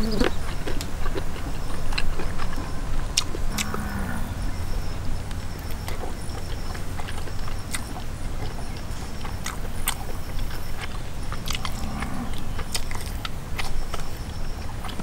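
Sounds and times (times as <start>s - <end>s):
man chewing meat: 0.0s - 15.0s
steady low rumble: 0.0s - 15.0s
lip smacks and mouth clicks: 12.6s - 14.3s.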